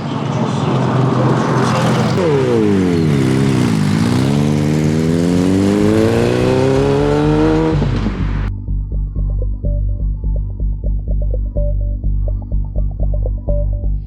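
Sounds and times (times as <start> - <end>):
car engine revving: 0.7 - 8.5.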